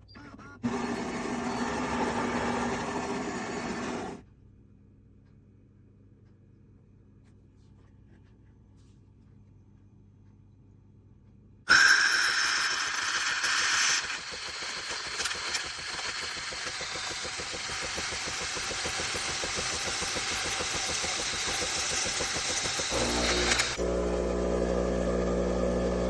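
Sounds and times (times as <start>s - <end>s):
coffee grinder grinding: 0.7s - 4.2s, 11.7s - 26.0s.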